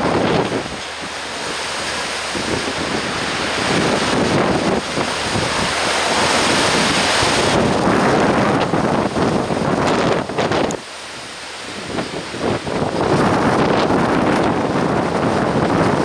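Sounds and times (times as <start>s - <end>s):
rushing wind-driven water: 0.0s - 16.0s
wind gusting against microphone: 0.0s - 16.0s.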